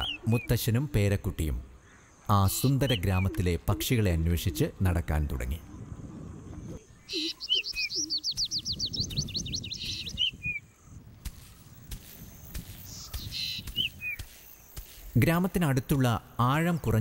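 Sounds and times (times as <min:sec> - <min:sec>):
small bird singing trills: 0:00.0 - 0:01.1, 0:01.8 - 0:04.9, 0:05.8 - 0:15.2
bird chirps: 0:00.0 - 0:04.9, 0:05.6 - 0:16.9.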